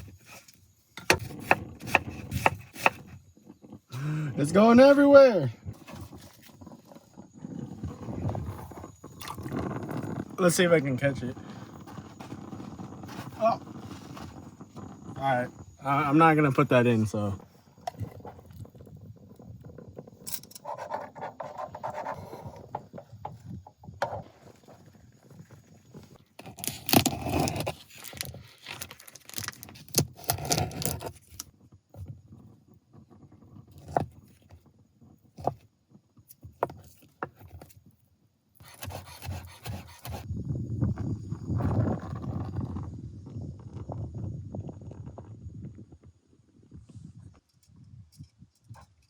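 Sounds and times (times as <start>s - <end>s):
cooking gear scraping and clinking: 17.8s - 31.5s.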